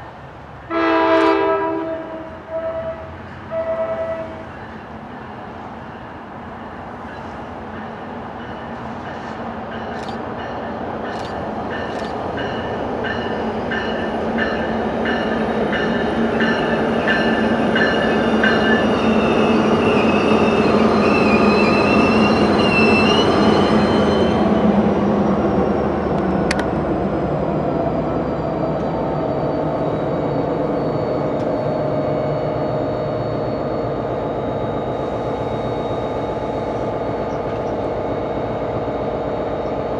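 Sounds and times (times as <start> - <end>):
diesel train running on rails: 0.0 - 39.9
steel wheel squeal: 16.6 - 24.5.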